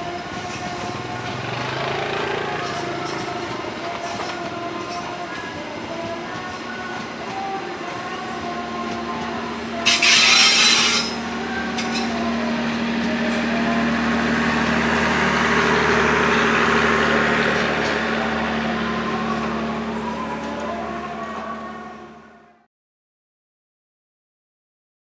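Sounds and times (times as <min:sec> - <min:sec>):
train wheels on rails: 0:00.0 - 0:21.7
loud rushing noise: 0:00.8 - 0:03.9, 0:12.7 - 0:20.0.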